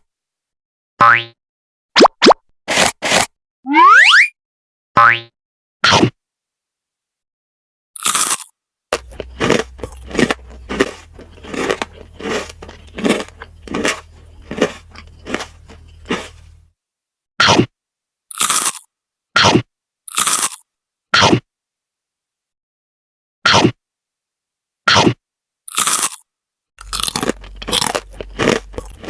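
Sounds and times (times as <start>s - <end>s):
crunchy food chewing: 8.0s - 16.7s, 18.3s - 20.6s, 25.7s - 26.2s, 26.8s - 29.0s.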